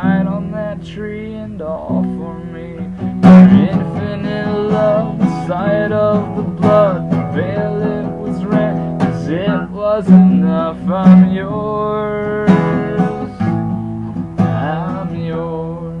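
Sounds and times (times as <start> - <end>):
person singing: 0.0 - 13.8, 14.4 - 16.0
acoustic guitar strumming: 0.0 - 16.0.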